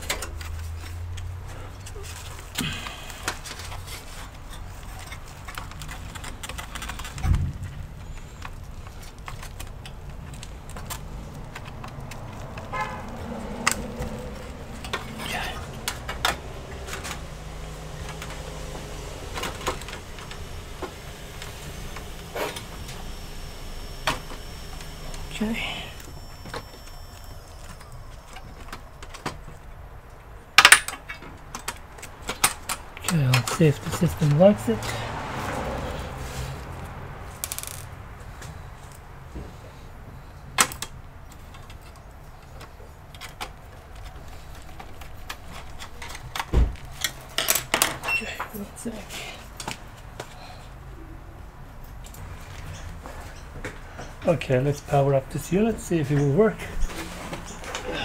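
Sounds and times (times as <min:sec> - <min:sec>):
steady low hum: 0:13.4 - 0:28.6
clicks and knocks of computer parts: 0:30.6 - 0:33.6.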